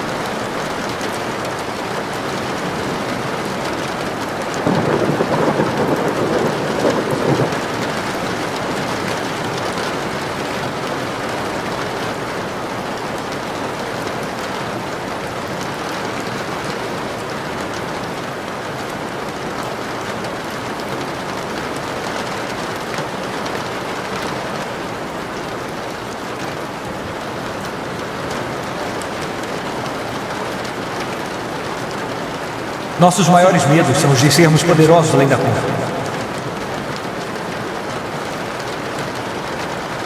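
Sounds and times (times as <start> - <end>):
heavy rain falling: 0.0 - 14.8.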